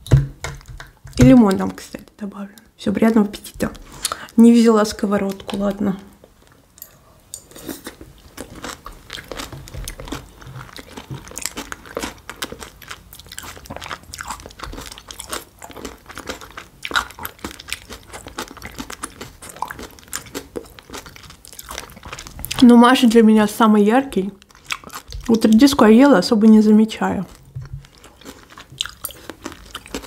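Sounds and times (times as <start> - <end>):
person chewing crunchy salad: 6.4 - 22.7, 24.4 - 25.6, 27.1 - 30.0.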